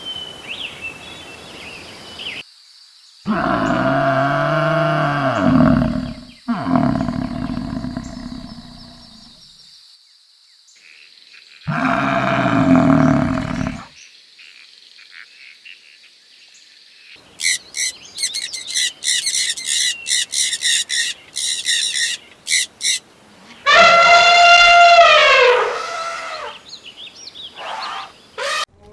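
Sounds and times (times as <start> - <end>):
loud low animal call: 3.3 - 9.4, 11.7 - 13.9, 17.4 - 26.6, 27.6 - 28.7
small bird chirping: 5.2 - 9.4, 17.3 - 23.0.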